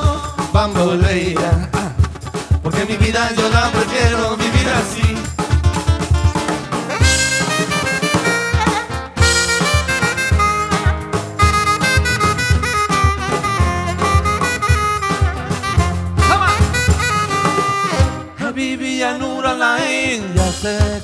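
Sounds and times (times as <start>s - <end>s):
steady drum beat: 0.0s - 18.4s, 20.4s - 21.0s
bass: 3.8s - 18.3s
lead melody line: 6.9s - 18.4s.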